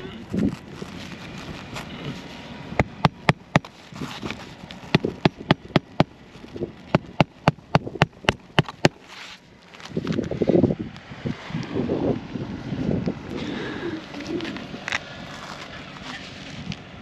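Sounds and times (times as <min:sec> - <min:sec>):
hammer striking roofing nails: 0:02.8 - 0:03.7, 0:04.9 - 0:06.1, 0:06.9 - 0:09.0.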